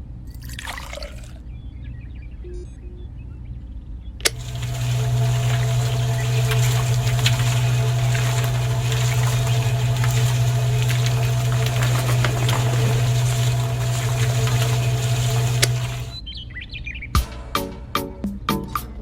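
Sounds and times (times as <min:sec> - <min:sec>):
small electric motor whirring: 0:04.2 - 0:16.2.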